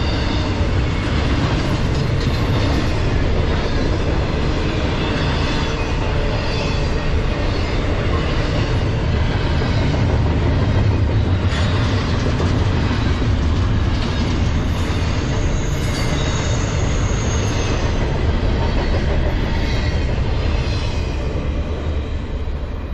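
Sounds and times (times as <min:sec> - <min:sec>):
train wheels rumbling on rails: 0:00.0 - 0:22.9
high wheel squeal: 0:14.7 - 0:18.0.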